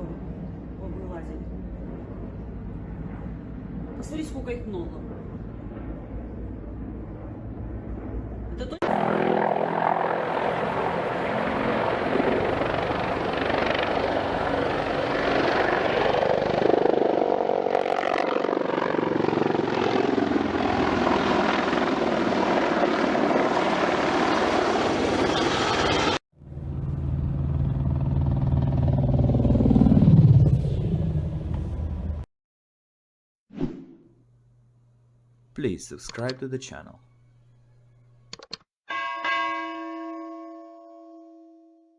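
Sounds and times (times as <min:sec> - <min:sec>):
helicopters passing low: 0:00.0 - 0:32.3.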